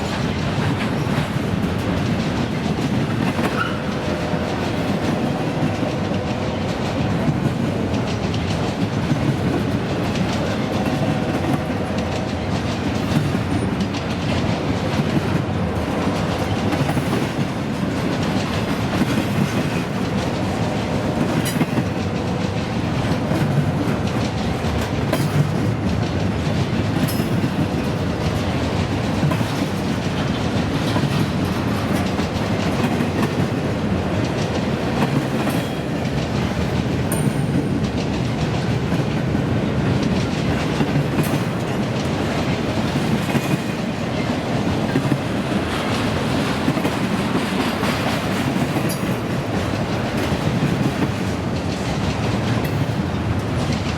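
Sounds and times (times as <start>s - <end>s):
train cars clattering: 0.0s - 53.9s
train wheels rumbling on rail: 0.0s - 53.9s.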